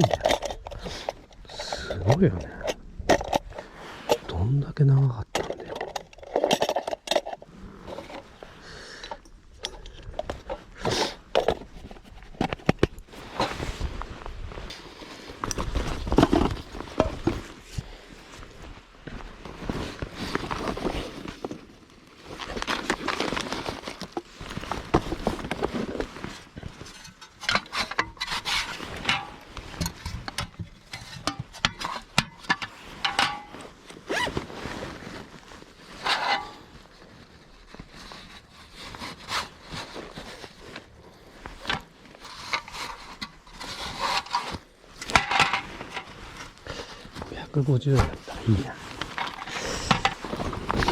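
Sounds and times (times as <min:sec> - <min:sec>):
objects rubbing and scraping: 0:05.2 - 0:50.9.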